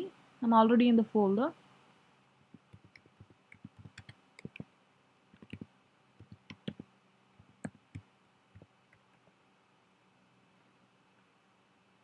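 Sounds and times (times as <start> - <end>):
keyboard keys clicking: 2.6 - 4.6, 5.4 - 6.8, 7.4 - 8.0.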